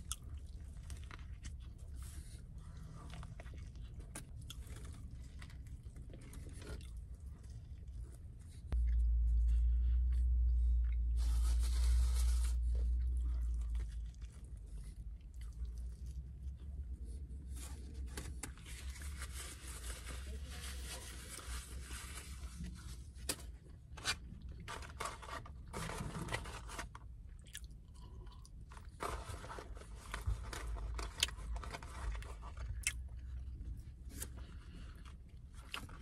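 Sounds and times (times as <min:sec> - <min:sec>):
person chewing food: 0:00.0 - 0:11.1, 0:12.7 - 0:17.3, 0:27.3 - 0:29.0, 0:32.4 - 0:36.0
low steady hum: 0:00.0 - 0:36.0.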